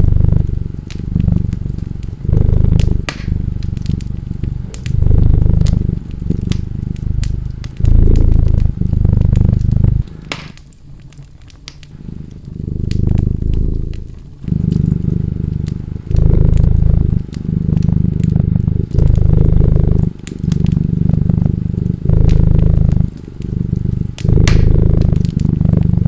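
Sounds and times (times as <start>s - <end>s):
cat purring: 0.0s - 26.0s
wood fire crackling and popping: 0.0s - 26.0s.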